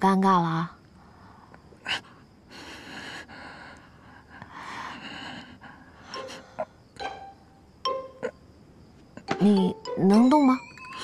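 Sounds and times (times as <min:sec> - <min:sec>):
heavy breaths: 0:01.0 - 0:06.9.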